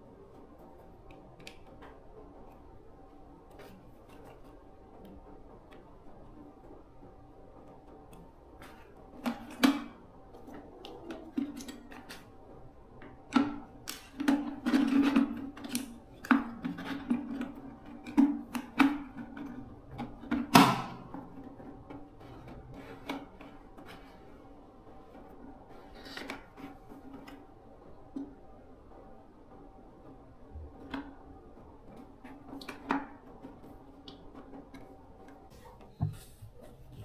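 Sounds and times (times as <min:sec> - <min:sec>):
hard parts knocking and clicking: 0:00.2 - 0:28.4.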